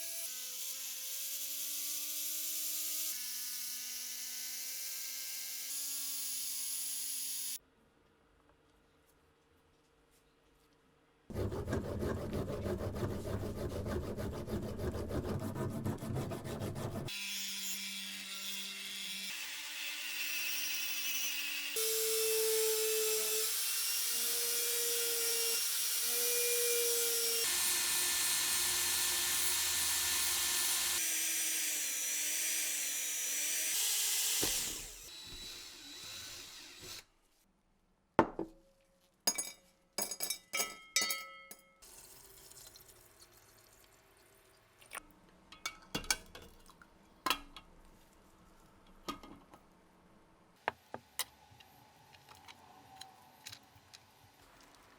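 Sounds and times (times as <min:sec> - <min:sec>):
tool grinding metal: 0:11.3 - 0:37.0.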